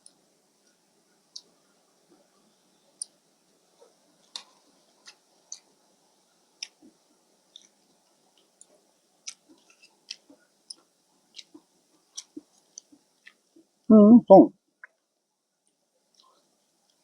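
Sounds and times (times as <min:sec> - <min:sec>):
chewing clicks and smacks: 0:04.2 - 0:05.7, 0:06.6 - 0:13.5.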